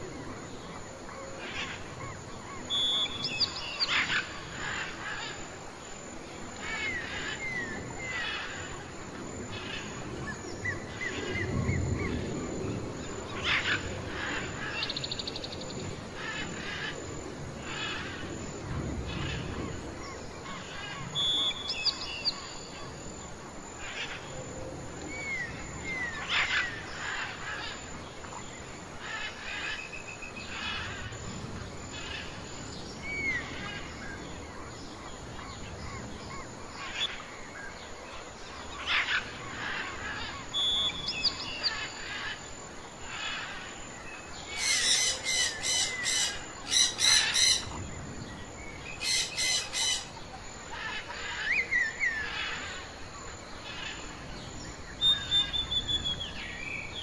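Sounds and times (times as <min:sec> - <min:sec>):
birds chirping and calling: 0:01.4 - 0:05.6, 0:31.9 - 0:42.5, 0:43.1 - 0:53.0, 0:53.6 - 0:57.0
sharp repeated bird calls: 0:44.5 - 0:47.8, 0:48.9 - 0:52.9.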